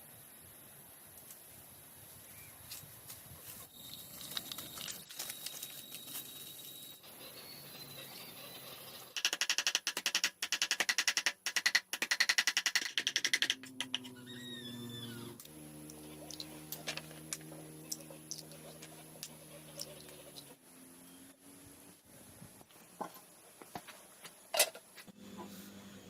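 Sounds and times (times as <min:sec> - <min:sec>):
animal wavering call: 0:13.6 - 0:16.6
animal rapid pulsing chatter: 0:16.0 - 0:20.6.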